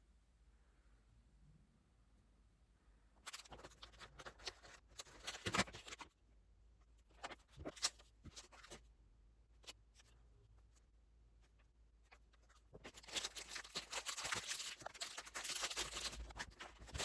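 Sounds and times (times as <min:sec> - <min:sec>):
paper rustling: 0:03.2 - 0:06.1, 0:07.0 - 0:08.8, 0:11.5 - 0:17.0.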